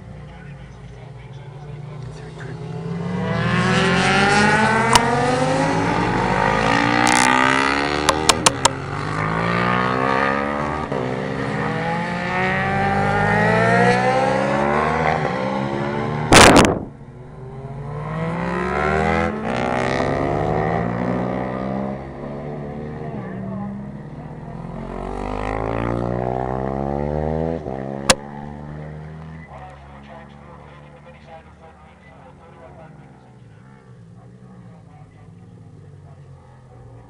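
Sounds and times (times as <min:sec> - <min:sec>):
racing motorcycles revving: 0:00.0 - 0:37.0
short loud rush of noise: 0:16.3 - 0:17.0.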